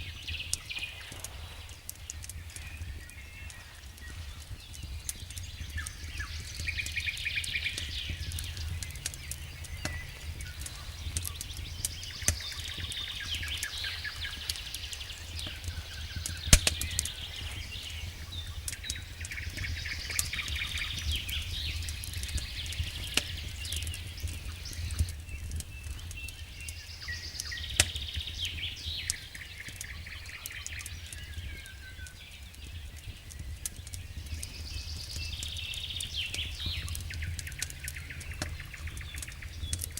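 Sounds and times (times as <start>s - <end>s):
wood fire crackling: 0.0s - 39.9s
steady low rumble: 0.3s - 26.0s
sharp fire pops: 0.4s - 39.9s.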